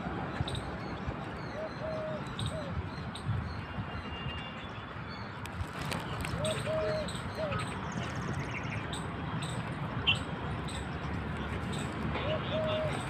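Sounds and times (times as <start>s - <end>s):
birds calling: 1.4s - 3.7s, 5.8s - 13.0s.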